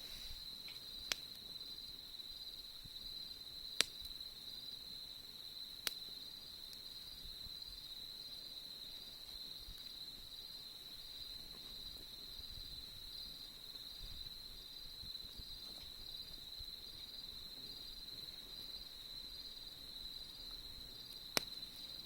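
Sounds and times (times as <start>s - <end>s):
campfire crackling pops: 0.0s - 2.1s, 2.7s - 7.7s, 8.8s - 10.4s, 19.6s - 22.0s
crickets chirring: 0.0s - 22.0s.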